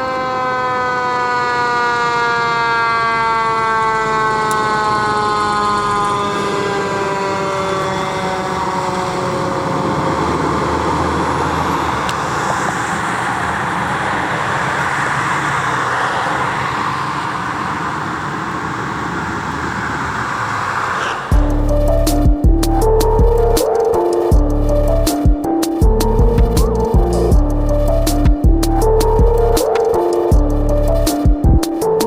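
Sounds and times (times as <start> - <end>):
fire engine siren winding down: 0.0 - 32.0
road noise: 0.0 - 32.0
truck engine rumble: 0.0 - 32.0
music: 21.3 - 32.0.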